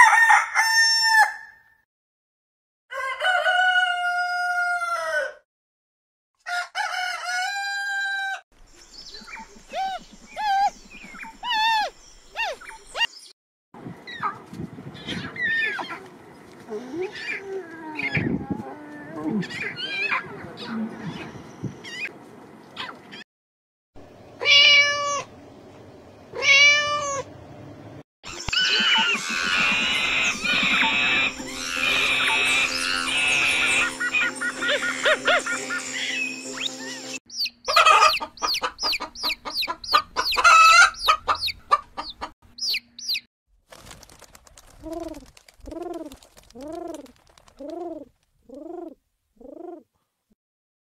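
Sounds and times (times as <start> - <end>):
rooster crowing: 0.0 - 1.6, 2.9 - 5.4, 6.4 - 8.4
high-pitched animal calls: 9.4 - 13.1, 28.3 - 41.6.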